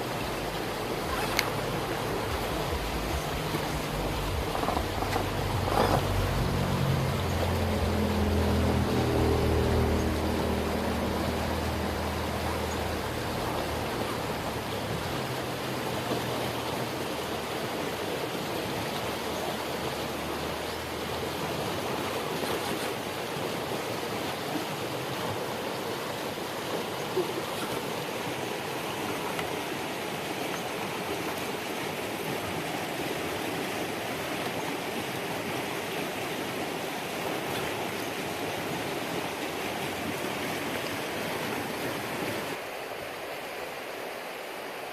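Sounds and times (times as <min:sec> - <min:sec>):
low motor hum: 0:00.0 - 0:22.9
creek water rushing: 0:00.0 - 0:44.9.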